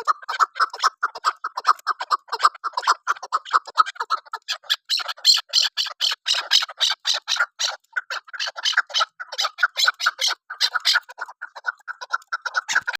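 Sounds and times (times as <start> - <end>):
partridge harsh clucking calls: 0.0 - 12.9.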